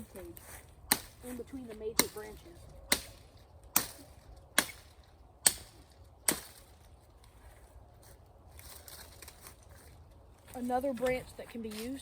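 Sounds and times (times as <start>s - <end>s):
branches rustling: 0.0s - 12.0s
machete chopping branches: 0.8s - 6.9s.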